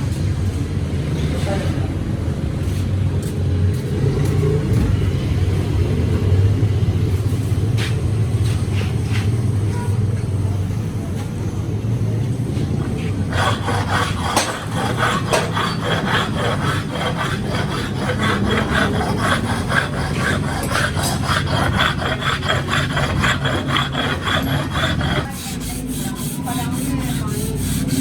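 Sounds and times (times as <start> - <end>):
rhythmic rasping strokes: 12.8 - 28.0.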